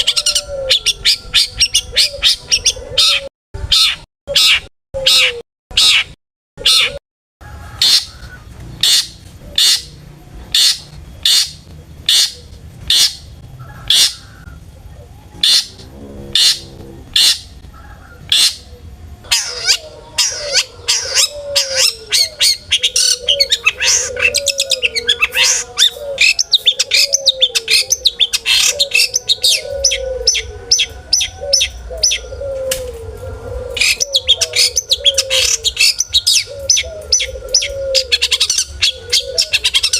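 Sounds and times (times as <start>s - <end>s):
shrike harsh calls: 3.7s - 39.9s
bird chattering song: 7.8s - 32.6s, 33.8s - 39.9s.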